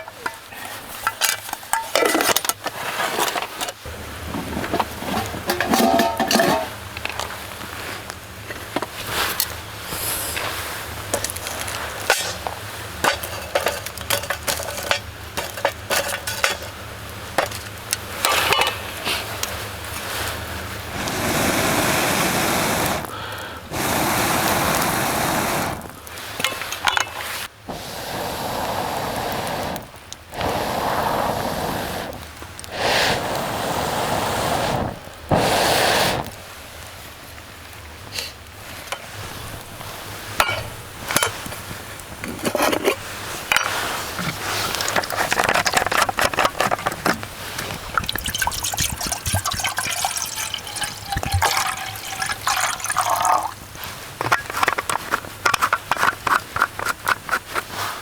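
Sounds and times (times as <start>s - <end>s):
cookware clinking and knocking: 0.0s - 7.2s, 11.1s - 16.8s, 17.4s - 18.9s, 26.4s - 27.3s, 40.4s - 41.6s, 42.2s - 53.6s.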